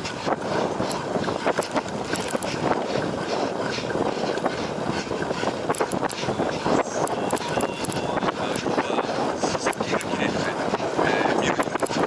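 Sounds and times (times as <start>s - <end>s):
wind on microphone: 0.0s - 12.0s
bike clicks and rattles: 0.8s - 2.8s, 5.2s - 6.3s, 7.0s - 8.6s, 9.6s - 10.2s, 11.6s - 12.0s.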